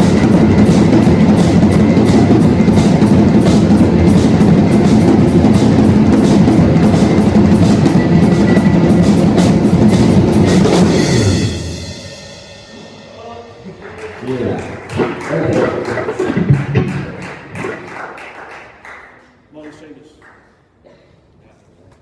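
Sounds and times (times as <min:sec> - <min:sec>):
cymbal strokes: 0:00.0 - 0:13.7
rock band playing loudly: 0:00.0 - 0:13.8, 0:14.4 - 0:17.8
drum kit beat: 0:00.0 - 0:18.8.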